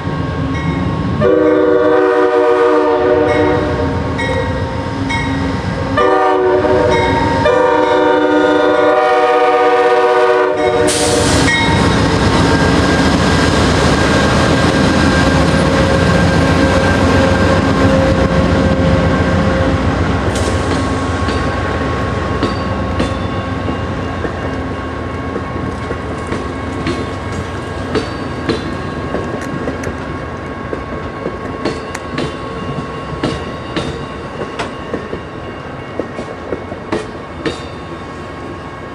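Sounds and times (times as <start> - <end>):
locomotive air horn: 1.2 - 4.0, 5.9 - 11.6.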